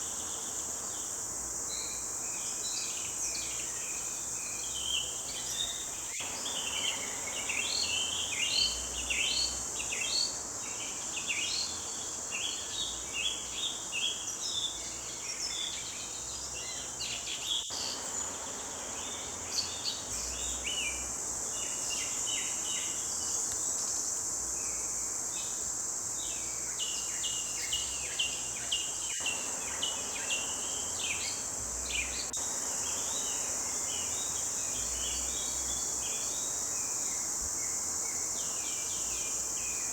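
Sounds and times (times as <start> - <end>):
songbirds chirping and trilling: 24.2 - 39.9.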